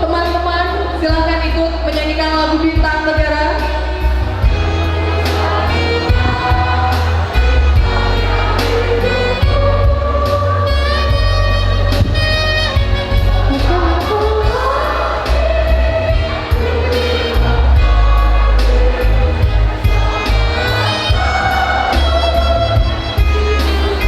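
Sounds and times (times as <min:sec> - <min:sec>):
heavy bass: 0:00.0 - 0:24.0
instrumental accompaniment: 0:02.7 - 0:24.0
choir singing: 0:04.4 - 0:12.0, 0:12.7 - 0:24.0.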